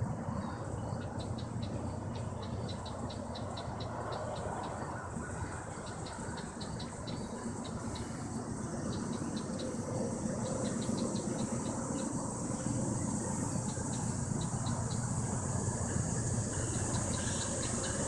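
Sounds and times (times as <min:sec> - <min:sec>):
diesel locomotive rumble: 0:00.0 - 0:18.0
insects chirping: 0:00.2 - 0:18.0.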